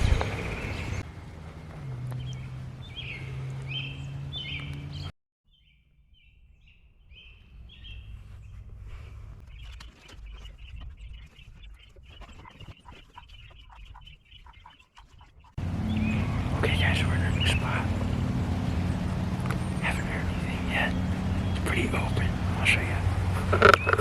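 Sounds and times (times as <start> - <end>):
songbirds calling: 0.0 - 1.0, 1.6 - 24.0
low steady hum: 15.6 - 23.8.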